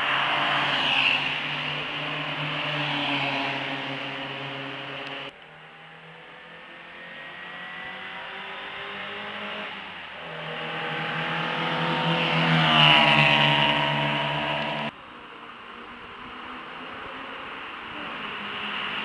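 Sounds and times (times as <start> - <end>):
sports car engine passing: 0.0 - 15.0.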